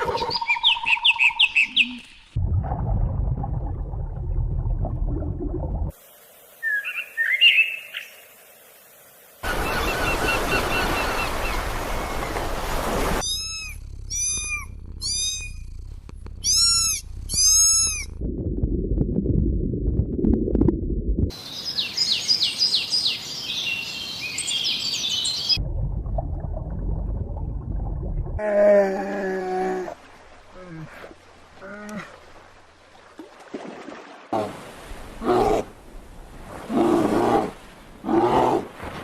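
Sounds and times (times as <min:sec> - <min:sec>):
low rumbling noise: 0:02.4 - 0:05.9, 0:12.7 - 0:21.3, 0:25.6 - 0:28.5
noise: 0:08.1 - 0:21.5
arched high calls: 0:13.2 - 0:15.8, 0:16.4 - 0:18.1
short chirping call: 0:13.2 - 0:15.8, 0:16.4 - 0:18.1
rapid high chirps: 0:13.2 - 0:18.1.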